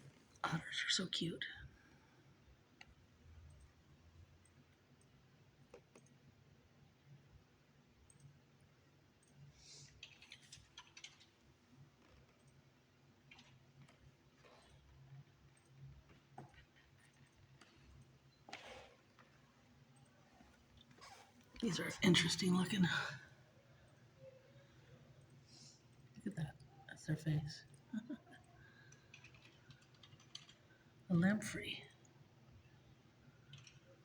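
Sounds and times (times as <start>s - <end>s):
faint low hum: 0.0s - 34.0s
faint clicks: 27.7s - 30.9s, 33.4s - 34.0s.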